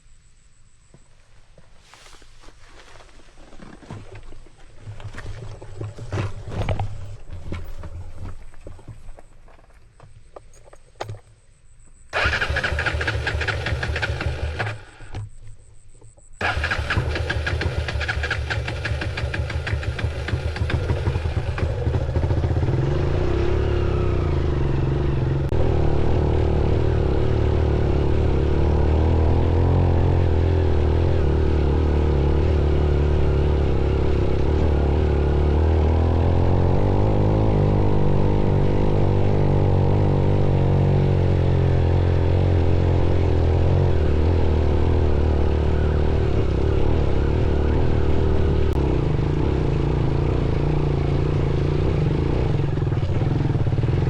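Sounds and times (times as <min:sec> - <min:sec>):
motorcycle engine idling: 0:12.2 - 0:15.2, 0:16.4 - 0:54.0
motorcycle starter cranking: 0:12.2 - 0:15.3, 0:16.4 - 0:22.8.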